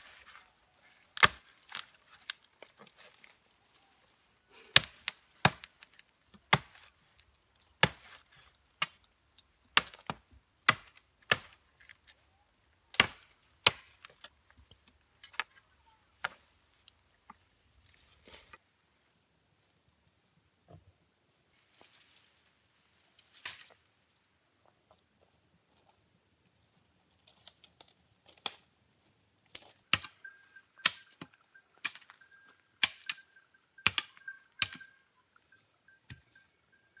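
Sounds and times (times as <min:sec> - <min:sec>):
axe chopping wood: 0:01.2 - 0:01.8, 0:04.8 - 0:05.9, 0:06.5 - 0:06.9, 0:07.8 - 0:09.0, 0:09.8 - 0:11.6, 0:12.9 - 0:14.1, 0:32.8 - 0:33.2, 0:33.9 - 0:34.8.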